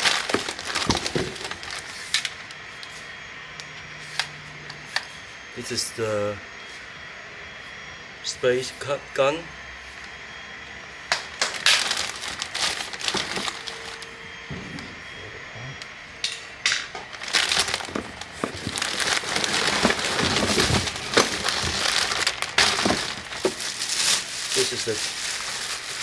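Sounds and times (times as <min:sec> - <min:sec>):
plastic packaging crinkling: 0:00.0 - 0:02.5, 0:11.2 - 0:14.1, 0:17.0 - 0:26.0.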